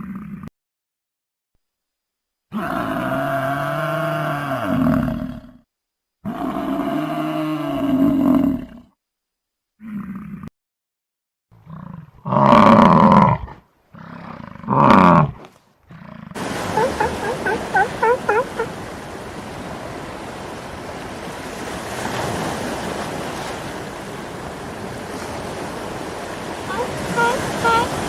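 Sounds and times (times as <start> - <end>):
drawn-out animal calls: 16.4 - 21.7, 23.0 - 28.0
surf: 16.4 - 28.0.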